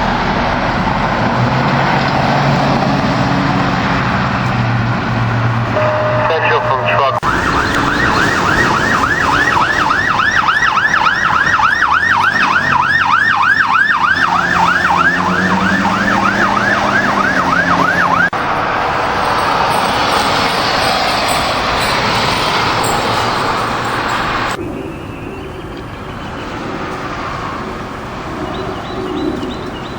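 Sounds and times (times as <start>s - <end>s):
vehicle and road noise: 0.0s - 29.9s
electronic siren yelping: 5.8s - 18.3s.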